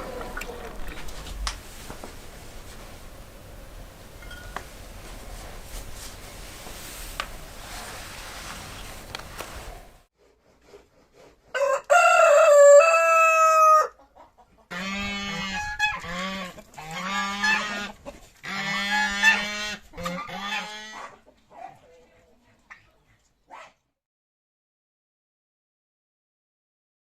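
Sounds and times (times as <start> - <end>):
rooster crowing: 11.6 - 14.0
chickens clucking: 14.0 - 21.5.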